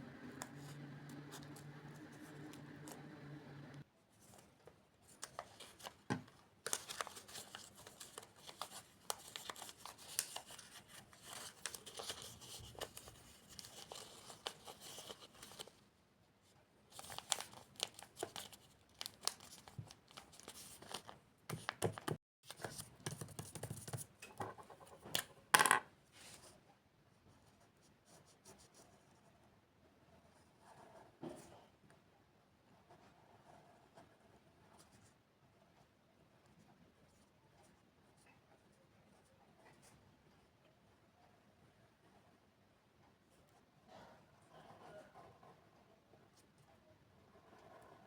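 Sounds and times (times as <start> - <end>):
paper rustling and tearing: 6.7 - 15.8.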